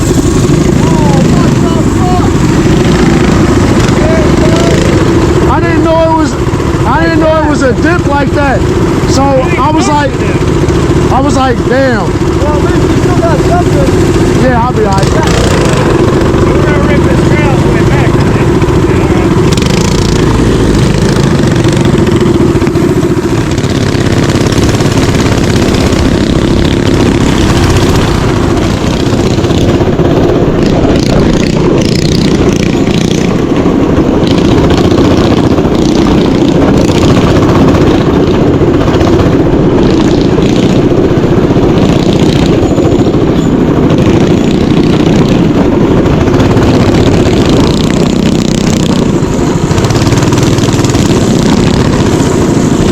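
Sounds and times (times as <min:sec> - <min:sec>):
mini bike engine running: 0:00.0 - 0:52.9.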